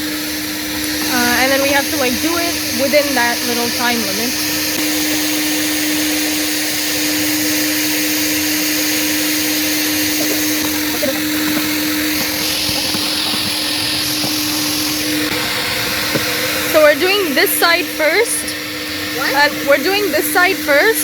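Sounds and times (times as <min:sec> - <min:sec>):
steady hum: 0:00.0 - 0:21.0
vacuum suction rushing: 0:00.0 - 0:21.0.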